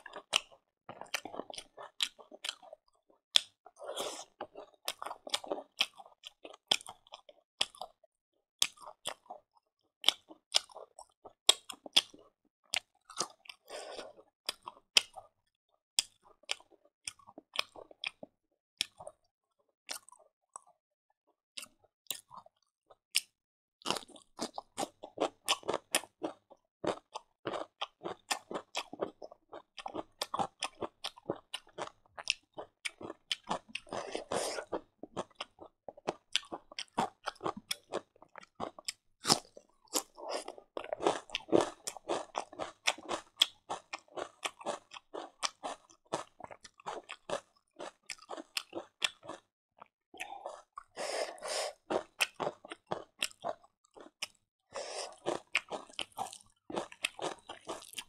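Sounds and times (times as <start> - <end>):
crunchy chewing: 21.6 - 58.0.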